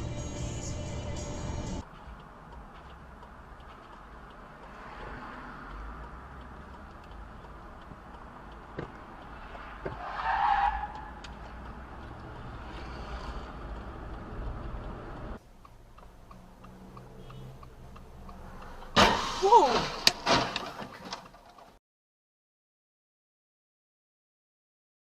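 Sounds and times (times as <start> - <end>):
car road and engine rumble: 0.0 - 21.8
turn signal ticking: 1.8 - 19.0.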